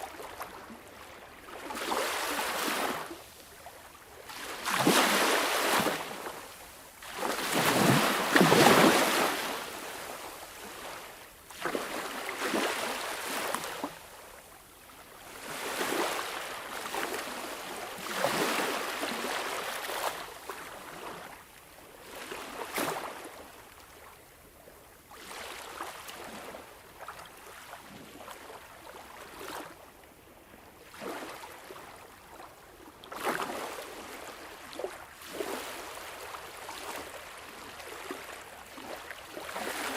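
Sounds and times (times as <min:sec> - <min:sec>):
sea waves breaking: 0:00.0 - 0:03.4, 0:04.2 - 0:14.1, 0:15.3 - 0:21.3, 0:33.1 - 0:39.9.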